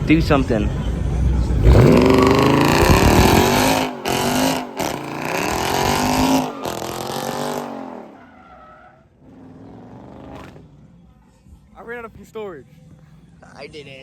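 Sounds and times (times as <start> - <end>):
car engine revving hard: 1.5 - 8.3
tyres squealing: 1.6 - 9.6.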